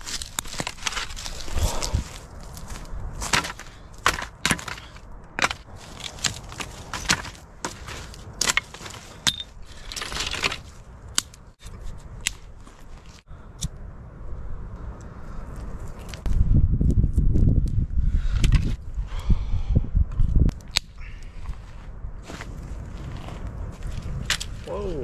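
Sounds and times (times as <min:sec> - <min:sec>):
wood cracking being broken: 0:00.0 - 0:11.4.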